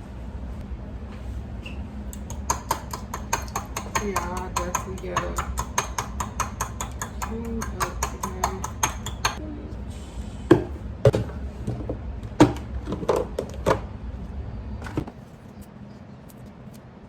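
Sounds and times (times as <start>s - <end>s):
kitchen items knocking on counter: 2.3s - 9.4s, 10.5s - 13.8s.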